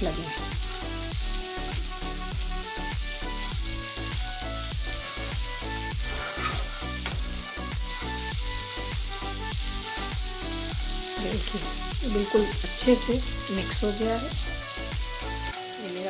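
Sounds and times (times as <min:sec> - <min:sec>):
background music with a beat: 0:00.0 - 0:16.0
food sizzling in a pan: 0:00.0 - 0:16.0
spatula stirring: 0:05.0 - 0:07.5.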